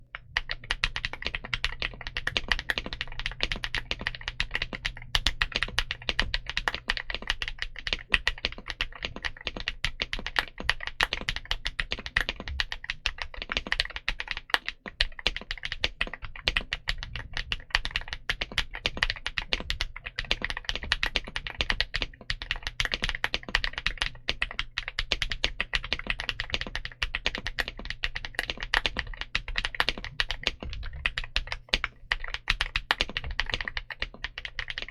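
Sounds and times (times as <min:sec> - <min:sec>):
fast typing on mechanical keyboard: 0:00.1 - 0:34.9.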